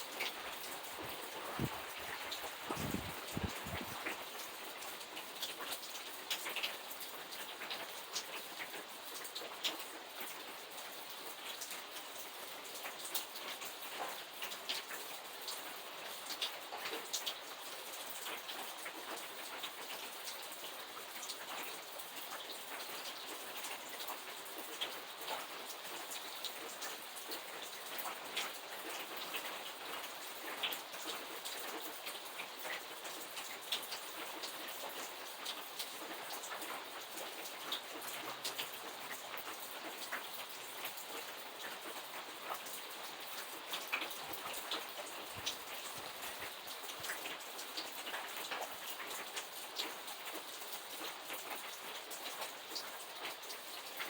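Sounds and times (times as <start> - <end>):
rain hissing: 0.0 - 4.7
raindrops ticking on hard surface: 0.0 - 54.0.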